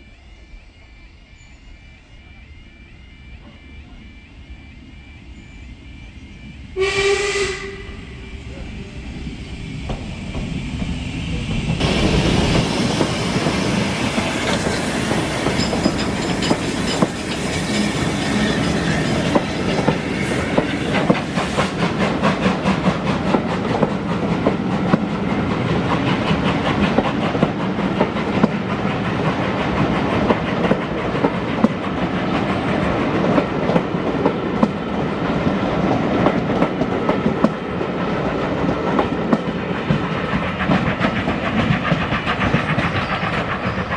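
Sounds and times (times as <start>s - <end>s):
train wheels clattering over rail joints: 9.8s - 43.9s.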